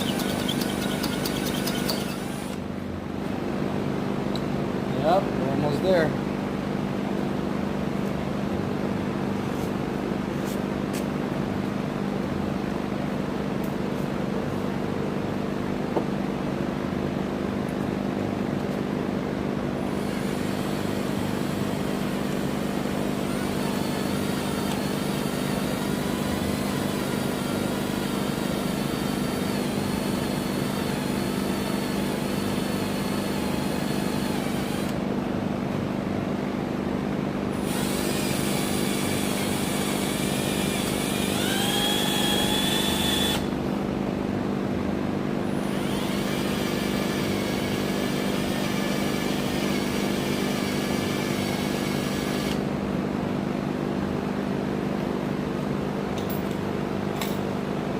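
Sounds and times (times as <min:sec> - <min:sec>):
electric drill boring metal: 0:00.0 - 0:02.6, 0:19.8 - 0:35.0, 0:37.6 - 0:43.5, 0:45.5 - 0:52.6.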